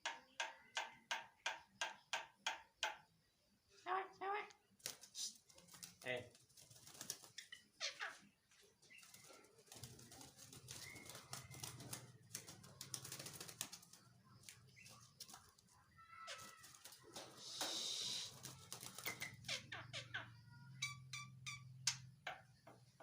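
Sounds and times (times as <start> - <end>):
faint bird whistles: 10.7 - 11.6, 17.4 - 18.4.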